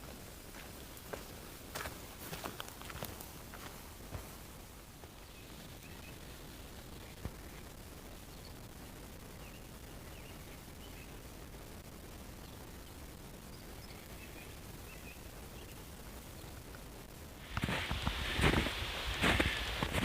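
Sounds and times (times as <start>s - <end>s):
steady background hiss: 0.0s - 20.0s
small birds chirping: 4.8s - 11.4s, 12.3s - 20.0s.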